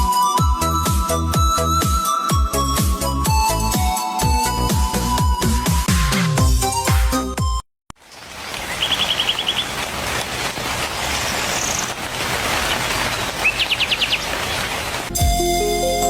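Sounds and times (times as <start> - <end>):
music: 0.0 - 7.6, 15.1 - 16.0
forest ambience hiss: 8.0 - 15.1
small birds chirping: 8.0 - 15.1.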